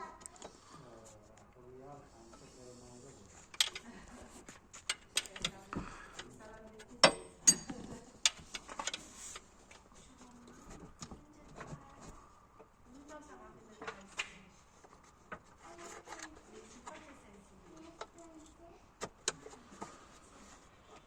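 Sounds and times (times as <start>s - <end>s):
sharp clicks and knocks: 4.7s - 5.6s, 6.2s - 9.5s.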